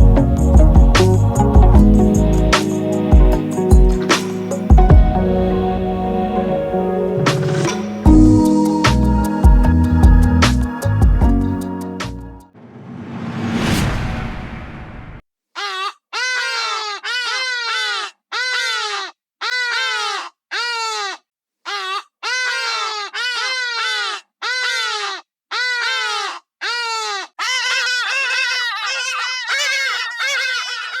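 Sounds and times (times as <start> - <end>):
gull calling: 25.6 - 31.0.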